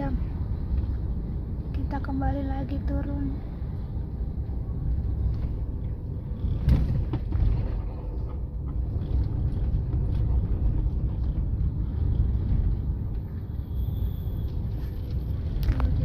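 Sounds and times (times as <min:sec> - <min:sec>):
vehicle engine and tyres rumbling: 0:00.0 - 0:16.0.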